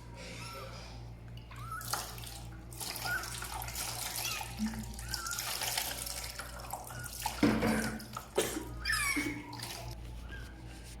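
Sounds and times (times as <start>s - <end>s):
cat crying: 1.5s - 2.2s, 2.9s - 6.0s, 8.7s - 10.0s
water running into a bath: 1.5s - 10.0s.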